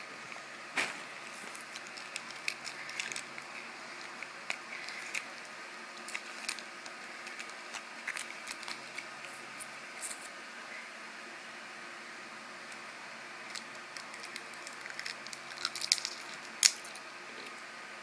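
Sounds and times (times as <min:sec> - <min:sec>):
steady low hum: 0:00.0 - 0:18.0
candy wrapper crackling: 0:01.2 - 0:10.3, 0:13.5 - 0:17.0.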